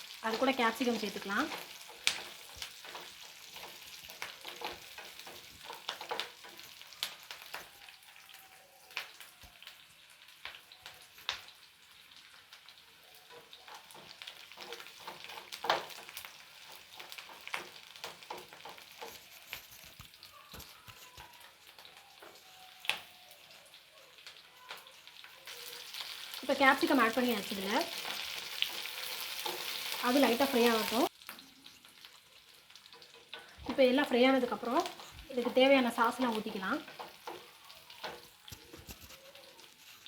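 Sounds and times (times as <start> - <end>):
vegetables sizzling in oil: 0.0 - 40.0
spoon scraping a pan: 0.3 - 7.7, 13.2 - 22.9, 26.8 - 31.9, 32.9 - 40.0.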